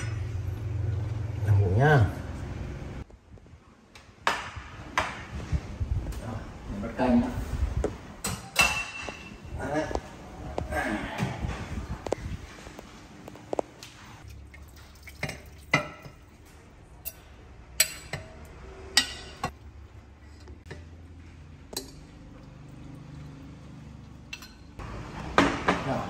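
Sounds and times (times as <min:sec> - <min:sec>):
liquid dripping and pouring: 0:13.9 - 0:16.5, 0:21.7 - 0:24.7
metal ladle clinking on bowl: 0:17.0 - 0:19.6, 0:24.3 - 0:24.8.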